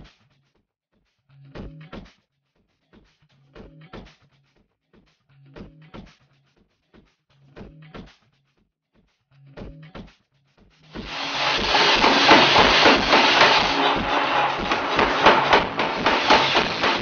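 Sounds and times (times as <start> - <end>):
forging hammer pounding: 11.0 - 17.0
loud hiss of air: 11.0 - 17.0.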